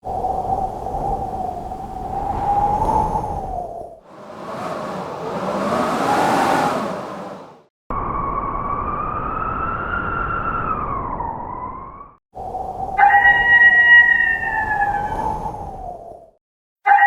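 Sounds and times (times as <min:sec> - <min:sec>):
blizzard wind rushing: 0:00.0 - 0:09.0, 0:12.4 - 0:16.4
low wind rumble: 0:00.0 - 0:16.4.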